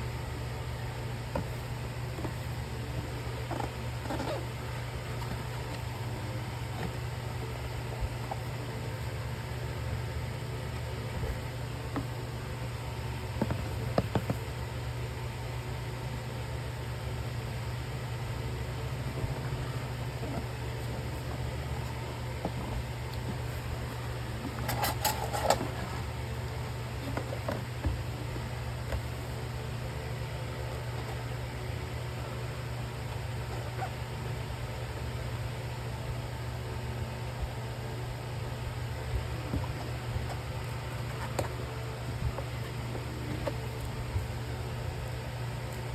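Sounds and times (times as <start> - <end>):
steady low hum: 0.0 - 45.9
clicking and rattling of packaging: 24.4 - 26.1.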